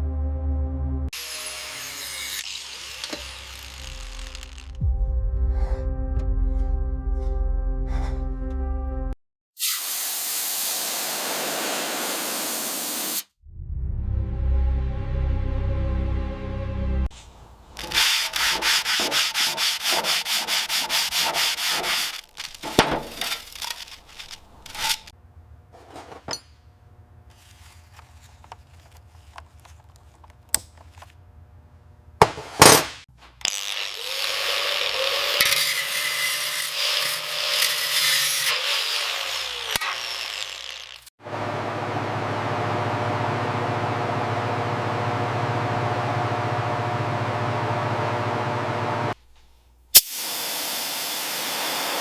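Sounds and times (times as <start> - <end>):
sanding strokes: 17.8 - 25.1, 34.0 - 41.0.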